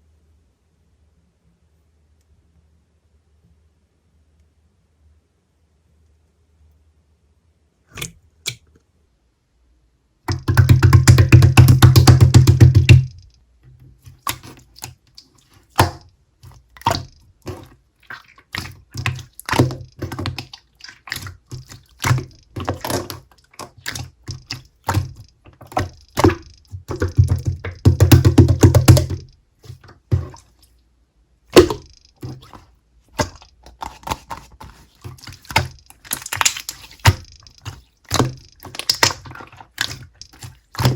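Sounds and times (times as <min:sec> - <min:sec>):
slime squeezed with sticky pops: 0:10.3 - 0:13.3, 0:14.1 - 0:30.4, 0:31.5 - 0:40.9
rapid crackling pops: 0:10.3 - 0:13.4.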